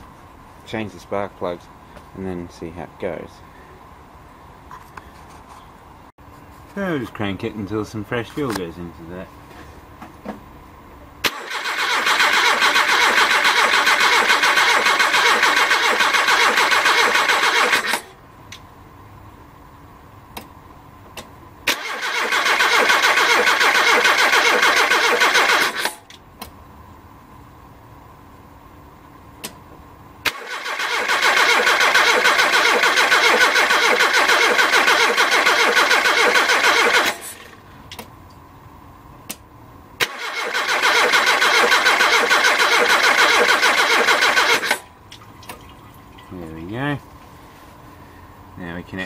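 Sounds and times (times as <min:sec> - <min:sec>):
car starter motor cranking: 0:11.2 - 0:18.2, 0:21.7 - 0:26.1, 0:30.2 - 0:37.6, 0:40.0 - 0:44.8.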